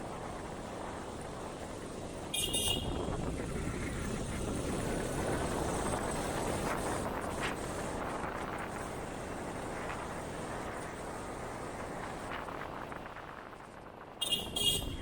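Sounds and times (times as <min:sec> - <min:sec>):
motorcycle engine and road noise: 0:00.0 - 0:15.0
short vehicle horn toot: 0:02.4 - 0:03.0, 0:14.2 - 0:15.0.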